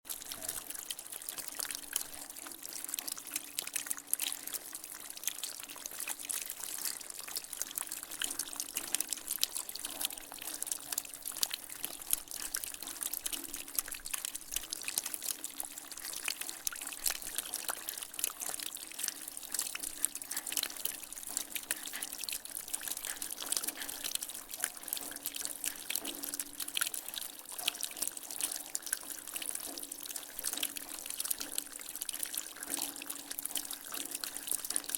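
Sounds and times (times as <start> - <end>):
water trickling: 0.1 - 34.9.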